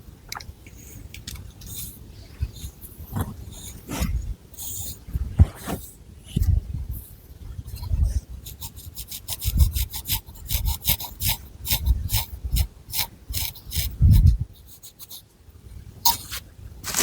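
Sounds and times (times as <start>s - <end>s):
fingernails scratching through hair: 16.1s - 17.0s.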